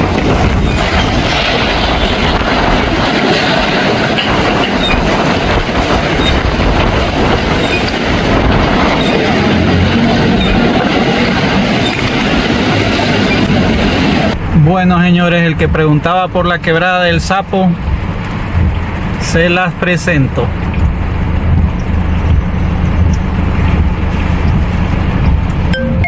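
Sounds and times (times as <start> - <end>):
floodwater rushing: 0.0 - 14.5.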